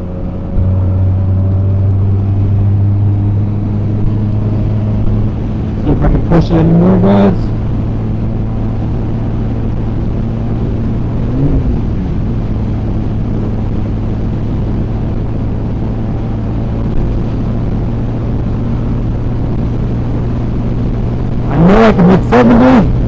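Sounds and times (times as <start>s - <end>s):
wind noise: 0.0s - 23.0s
motorcycle engine at high revs: 11.1s - 12.5s.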